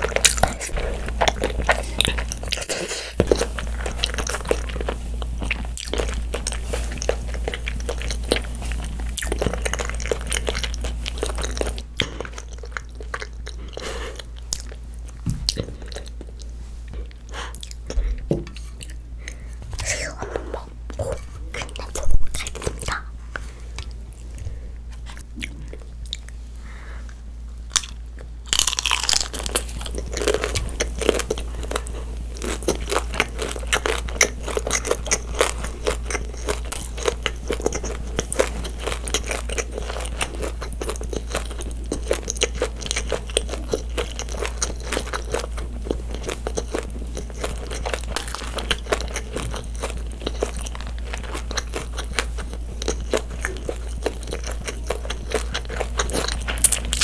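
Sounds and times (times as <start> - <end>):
low electrical hum: 0.0 - 57.0
wet chewing clicks: 27.7 - 57.0.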